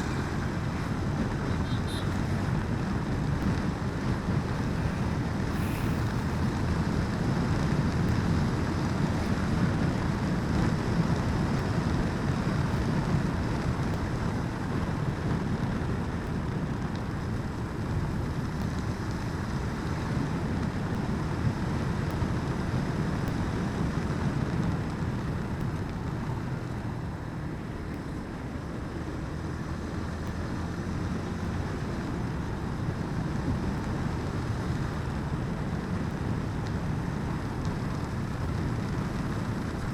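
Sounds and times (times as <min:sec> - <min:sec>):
motorcycle engine: 0:00.0 - 0:22.8
road noise: 0:00.0 - 0:39.9
wind rushing over microphone: 0:00.0 - 0:39.9.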